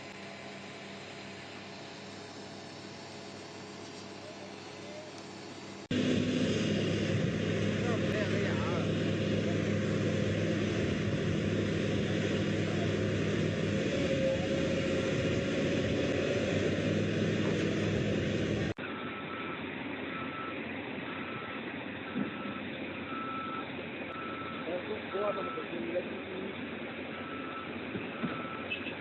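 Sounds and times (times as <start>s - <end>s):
heavy vehicle engine droning: 0.0s - 29.0s
reversing alarm beeps: 19.0s - 25.7s, 27.2s - 28.8s.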